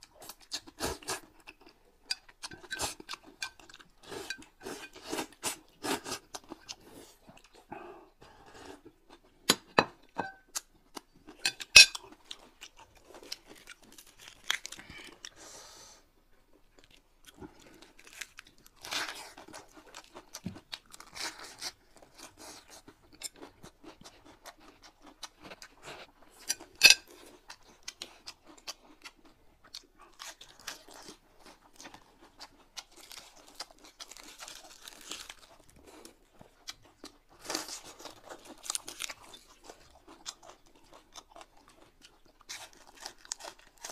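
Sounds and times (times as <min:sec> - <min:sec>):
crunching raw vegetables: 0:10.4 - 0:15.3, 0:16.6 - 0:43.9.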